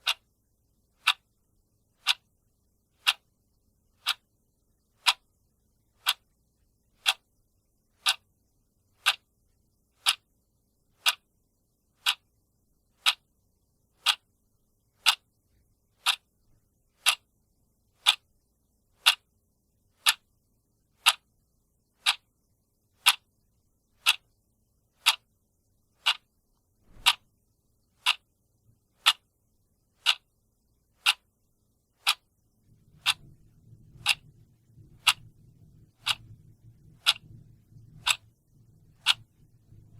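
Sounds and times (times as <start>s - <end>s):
clock ticking: 0.0s - 0.3s, 1.0s - 1.3s, 2.0s - 2.3s, 2.9s - 3.3s, 4.0s - 4.3s, 4.9s - 5.3s, 6.0s - 6.4s, 7.0s - 7.3s, 8.0s - 8.3s, 8.9s - 9.3s, 10.0s - 10.3s, 11.0s - 11.3s, 12.0s - 12.3s, 13.0s - 13.3s, 13.9s - 14.3s, 15.0s - 15.3s, 16.0s - 16.4s, 17.0s - 17.3s, 18.0s - 18.3s, 19.0s - 19.3s, 20.0s - 20.3s, 21.0s - 21.3s, 21.9s - 22.3s, 23.0s - 23.3s, 24.0s - 24.3s, 25.0s - 25.3s, 26.0s - 26.3s, 26.9s - 27.3s, 27.9s - 28.3s, 29.0s - 29.3s, 30.0s - 30.3s, 31.0s - 31.3s, 32.0s - 39.9s
faint low rumble: 30.5s - 39.9s.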